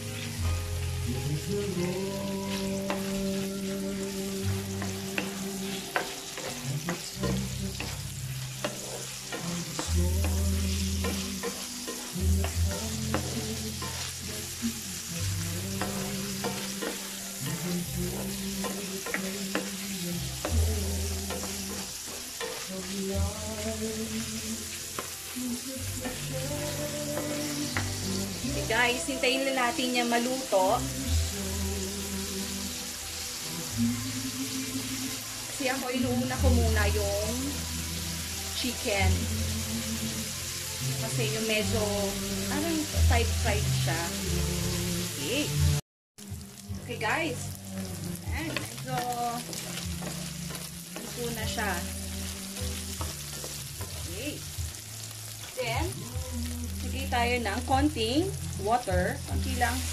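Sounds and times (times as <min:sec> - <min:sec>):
background music with bass line: 0:00.0 - 0:59.9
chicken sizzling in a pan: 0:00.0 - 0:59.9
spatula scraping a pan: 0:01.7 - 0:28.5, 0:48.4 - 0:55.6.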